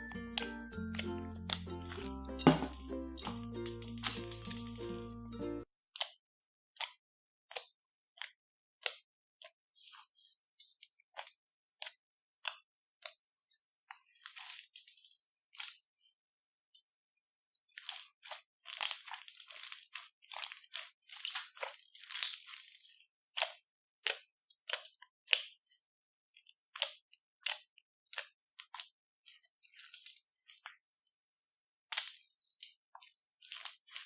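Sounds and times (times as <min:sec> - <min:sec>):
crunchy slime crackling and popping: 0:03.7 - 0:05.0, 0:17.8 - 0:22.8, 0:31.9 - 0:32.8, 0:33.4 - 0:34.0.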